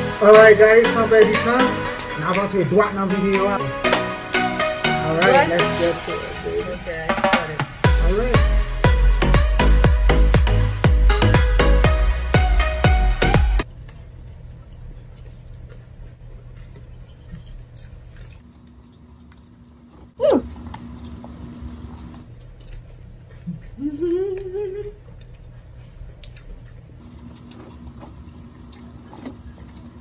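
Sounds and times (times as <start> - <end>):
people chewing bread: 13.8 - 30.0
wet mouth clicks: 26.2 - 26.7.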